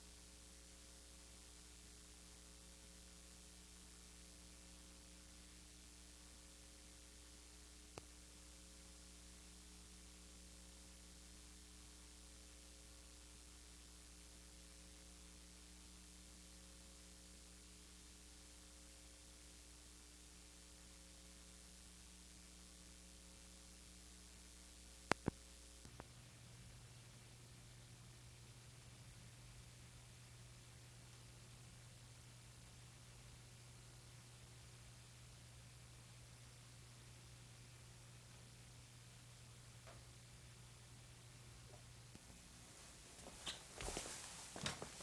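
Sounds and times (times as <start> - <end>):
electrical hum with hiss: 0.0 - 45.0.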